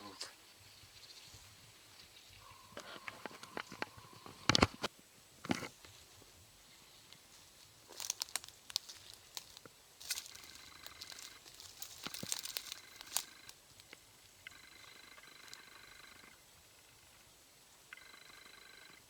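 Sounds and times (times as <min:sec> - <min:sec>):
faint steady tone: 0:00.0 - 0:08.1, 0:08.8 - 0:19.0
footsteps crunching dry leaves: 0:06.9 - 0:14.0.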